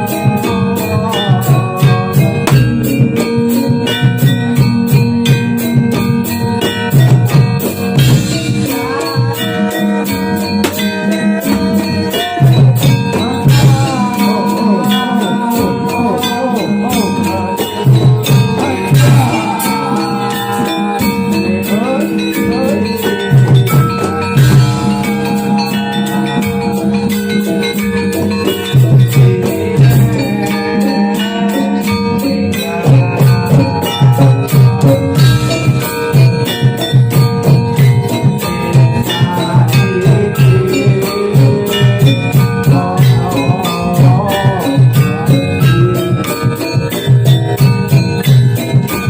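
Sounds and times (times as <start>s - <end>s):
heavy drum strokes: 0.0s - 49.0s
ringing struck metal tones: 0.0s - 49.0s
wavering melody line: 0.0s - 49.0s.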